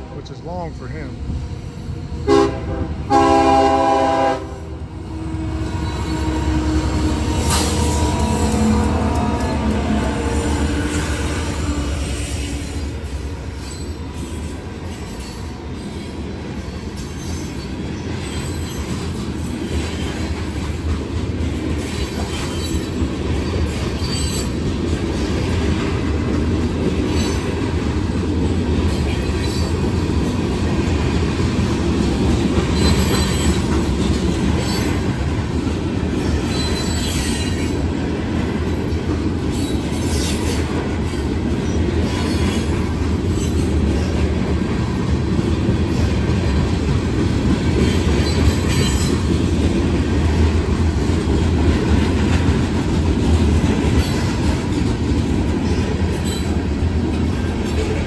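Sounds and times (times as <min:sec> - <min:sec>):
steel wheels rumbling on rail: 0:00.0 - 0:58.0
wheels clacking over rail joints: 0:17.1 - 0:58.0
wheel squeals: 0:36.3 - 0:37.7.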